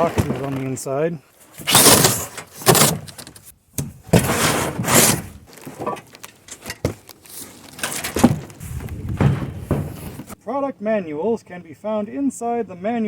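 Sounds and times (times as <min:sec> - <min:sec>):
packaging scraping and rustling: 0:01.4 - 0:03.4, 0:04.1 - 0:10.4
light knocks and scrapes: 0:02.0 - 0:10.4.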